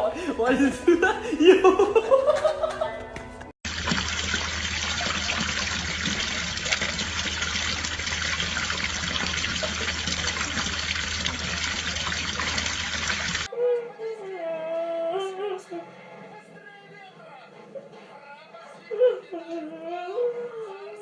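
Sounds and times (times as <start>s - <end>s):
running water: 3.6s - 13.5s.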